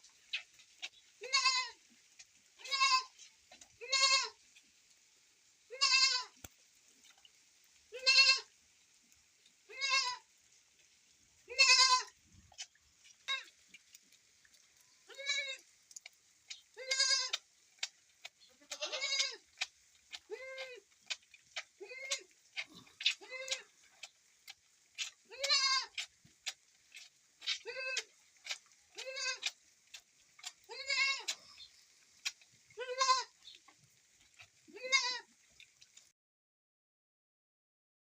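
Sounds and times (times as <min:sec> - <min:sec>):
goat bleating: 0:01.2 - 0:01.8, 0:02.6 - 0:03.2, 0:03.8 - 0:04.4, 0:05.7 - 0:06.4, 0:07.9 - 0:08.5, 0:09.7 - 0:10.2, 0:11.5 - 0:12.2, 0:15.1 - 0:15.6, 0:16.8 - 0:17.4, 0:18.4 - 0:19.4, 0:20.2 - 0:20.8, 0:21.8 - 0:23.7, 0:25.0 - 0:26.1, 0:27.4 - 0:28.1, 0:28.9 - 0:29.6, 0:30.4 - 0:31.4, 0:32.8 - 0:33.4, 0:34.7 - 0:35.3.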